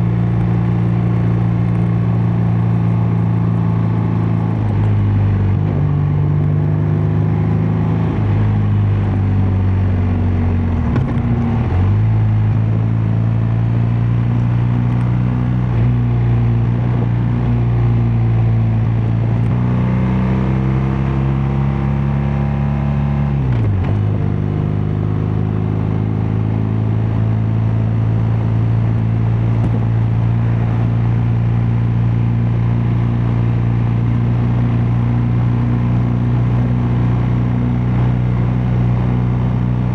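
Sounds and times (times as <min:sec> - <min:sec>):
motorcycle engine and exhaust cruising: 0:00.0 - 0:39.9.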